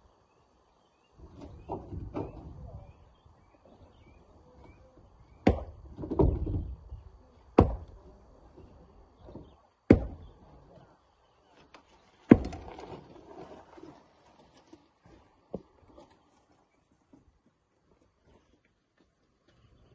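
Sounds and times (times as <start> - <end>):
rock being struck by hand: 5.4 - 6.4, 7.6 - 7.9, 9.9 - 10.2, 12.3 - 12.8.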